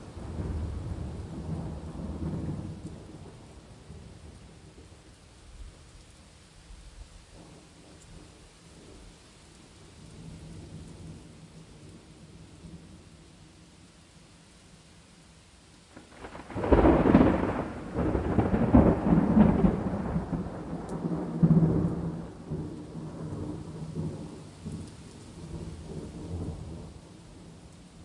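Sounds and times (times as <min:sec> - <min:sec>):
rain hissing: 0:00.0 - 0:28.0
thunderclap rumbling: 0:00.1 - 0:04.9, 0:15.9 - 0:27.6.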